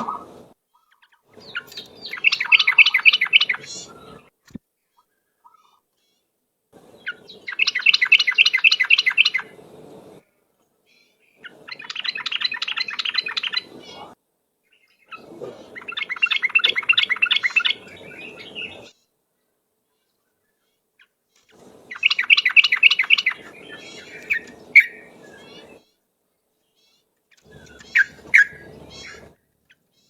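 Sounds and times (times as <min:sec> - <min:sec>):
bulbul singing chattering song: 0:00.0 - 0:04.3, 0:06.8 - 0:10.2, 0:11.0 - 0:19.0, 0:21.4 - 0:26.0, 0:26.8 - 0:30.0.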